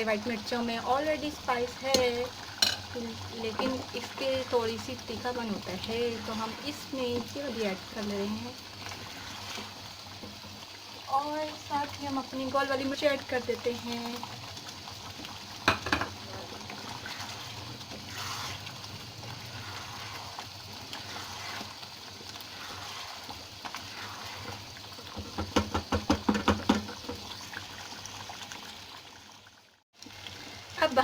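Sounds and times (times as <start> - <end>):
curry sizzling and bubbling in pot: 0.0 - 31.0
utensil clinking against pot: 1.9 - 2.9.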